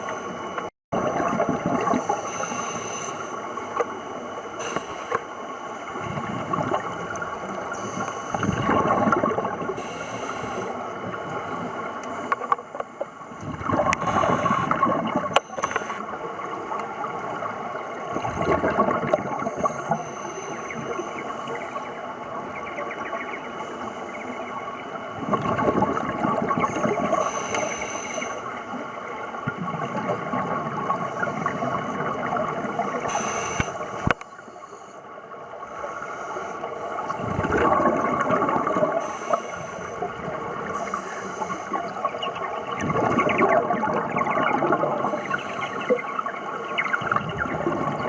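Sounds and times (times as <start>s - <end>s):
exhaled bubbles rushing: 1.0s - 2.2s, 6.0s - 9.8s, 13.4s - 20.0s, 25.1s - 27.3s, 29.3s - 33.1s, 37.0s - 39.0s, 40.0s - 48.0s
diver breathing through regulator: 9.8s - 10.8s, 14.0s - 16.0s, 27.1s - 28.4s, 32.9s - 34.0s, 39.0s - 40.0s, 40.7s - 41.8s.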